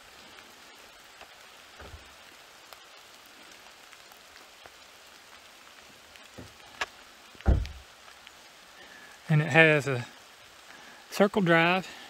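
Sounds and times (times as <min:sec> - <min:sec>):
steady rain falling: 0:00.0 - 0:12.0
soft low thumps: 0:07.4 - 0:07.9.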